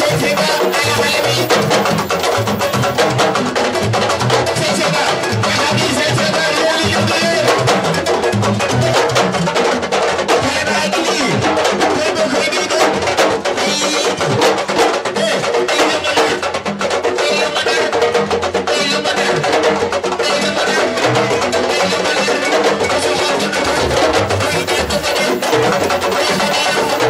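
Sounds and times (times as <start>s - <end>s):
fast drumming: 0.0s - 27.0s
deep drum tones: 20.8s - 27.0s.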